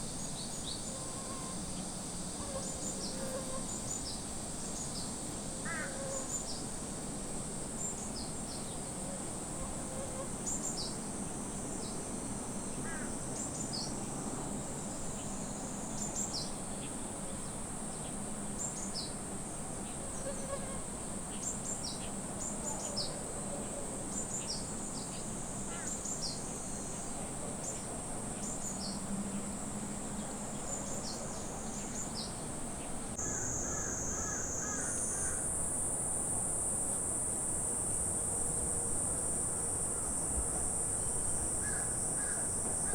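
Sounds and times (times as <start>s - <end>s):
high-pitched insect drone: 33.2s - 42.9s.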